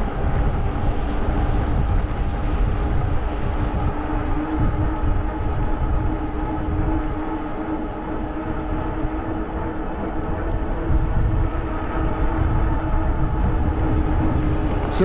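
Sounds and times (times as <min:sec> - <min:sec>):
electric bike motor whining: 0:00.0 - 0:15.0
low wind rumble on microphone: 0:00.0 - 0:15.0.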